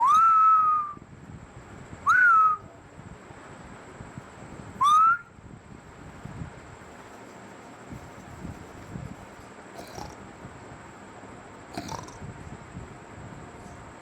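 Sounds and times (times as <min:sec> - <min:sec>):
whistle notes sliding up: 0:00.0 - 0:00.9.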